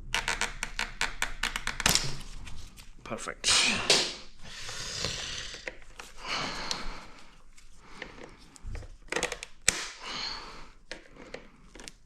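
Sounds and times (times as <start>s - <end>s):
person breathing: 4.4s - 9.0s, 9.9s - 12.0s.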